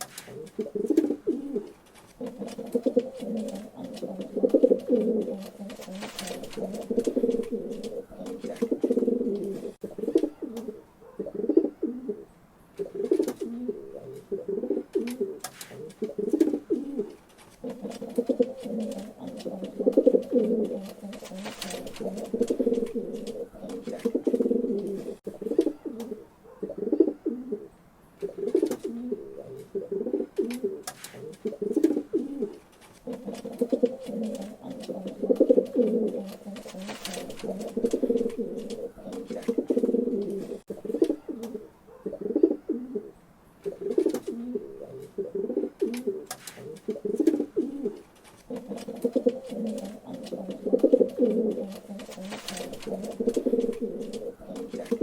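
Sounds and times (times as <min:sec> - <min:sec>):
wing flaps and clicks: 0:00.0 - 0:10.3, 0:14.9 - 0:25.7, 0:30.4 - 0:41.6, 0:45.8 - 0:55.0
pigeons cooing: 0:00.0 - 0:55.0.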